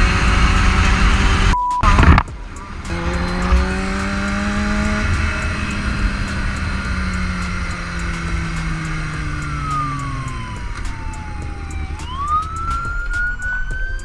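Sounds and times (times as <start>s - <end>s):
loud burst: 0.0s - 14.0s
short beep: 1.5s - 2.3s
motorcycle engine running: 2.3s - 13.0s.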